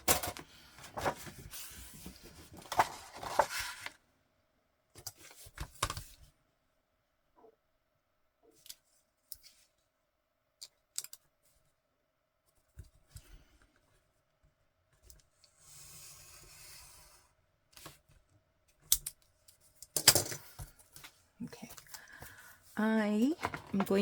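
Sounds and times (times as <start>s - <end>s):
paper rustling: 0.1s - 4.0s.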